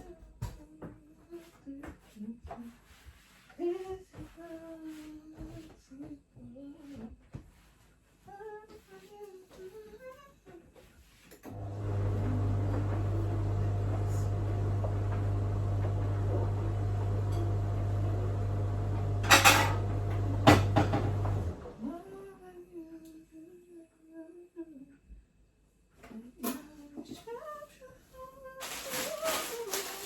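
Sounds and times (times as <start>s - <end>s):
appliance motor humming: 11.5s - 22.0s.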